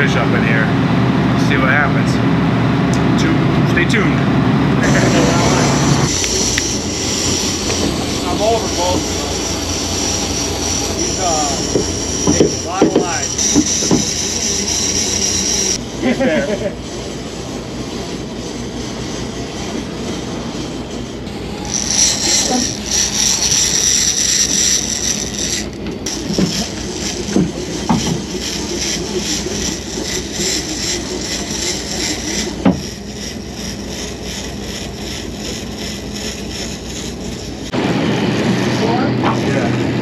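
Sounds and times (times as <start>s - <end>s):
boat engine drone: 0.0s - 40.0s
short knocks: 11.7s - 14.2s.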